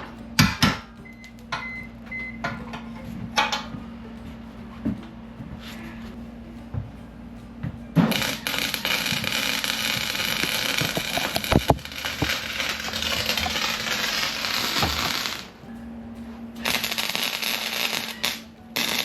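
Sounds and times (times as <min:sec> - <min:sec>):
steady low hum: 0:00.0 - 0:19.0
electric welding arc crackling: 0:08.1 - 0:15.6, 0:16.6 - 0:19.0.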